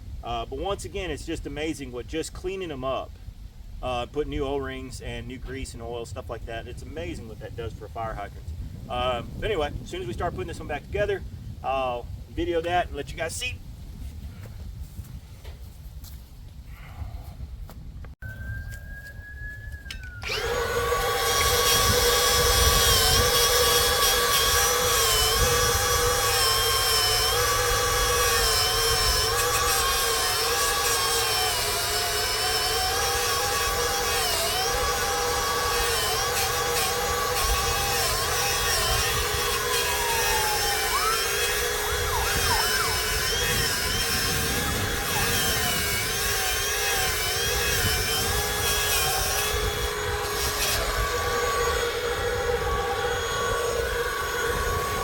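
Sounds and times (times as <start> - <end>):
electric wire brush grinder: 20.2 - 55.0.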